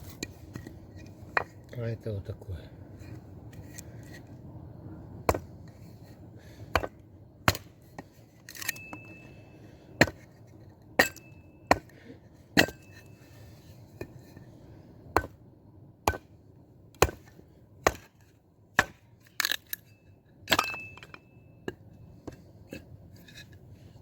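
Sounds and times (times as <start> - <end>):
blade chopping wooden log: 6.7 - 8.1, 11.0 - 12.0, 15.1 - 15.4, 16.0 - 16.3, 17.0 - 19.1.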